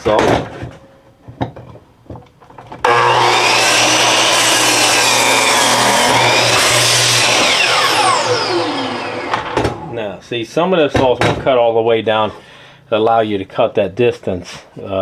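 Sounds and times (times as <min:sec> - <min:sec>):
electric miter saw whining: 0:02.9 - 0:10.0.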